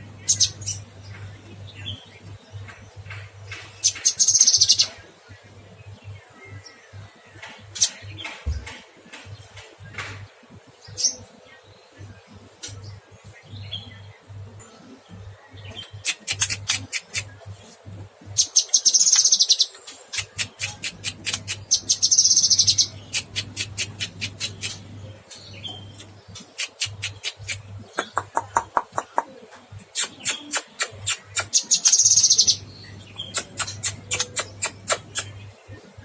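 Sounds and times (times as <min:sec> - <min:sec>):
steady low hum: 0:20.0 - 0:30.2.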